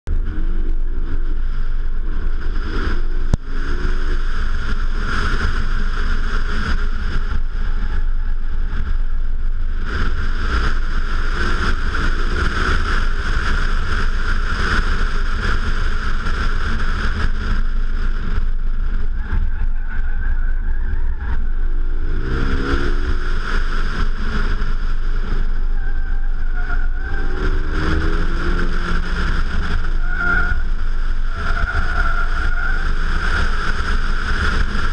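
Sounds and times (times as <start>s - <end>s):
car engine accelerating: 0.1s - 34.9s.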